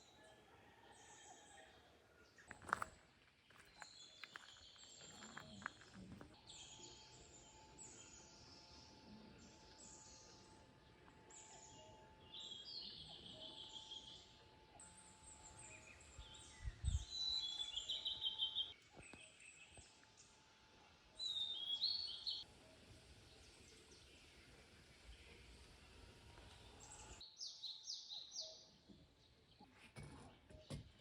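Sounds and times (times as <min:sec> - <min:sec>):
birds chirping: 0:03.5 - 0:19.9.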